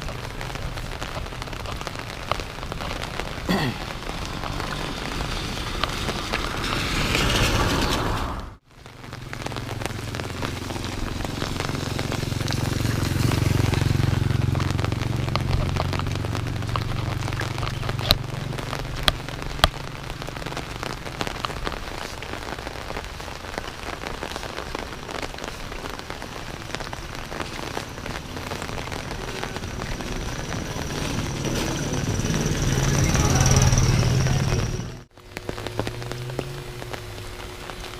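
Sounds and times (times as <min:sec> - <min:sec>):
low rumble: 0:00.0 - 0:37.9
rain pattering: 0:00.0 - 0:37.9.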